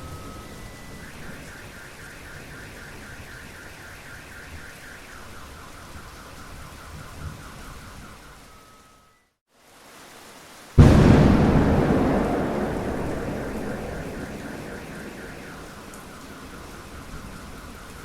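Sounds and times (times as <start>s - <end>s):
steady rain: 9.5s - 18.0s.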